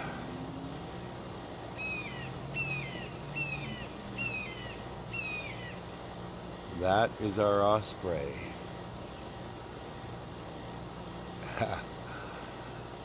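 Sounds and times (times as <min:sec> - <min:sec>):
air conditioner humming: 0:00.0 - 0:13.0
osprey whistled chirps: 0:01.8 - 0:05.8.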